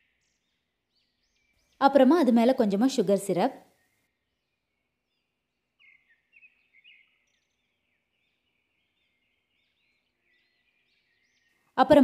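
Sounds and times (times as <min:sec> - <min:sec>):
faint bird chirps: 0:00.0 - 0:02.9, 0:03.6 - 0:12.0.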